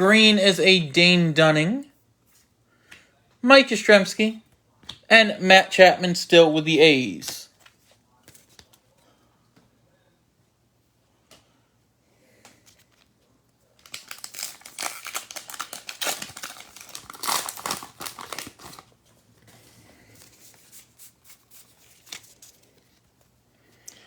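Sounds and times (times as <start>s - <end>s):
plastic wrapper crinkling: 13.8s - 23.1s.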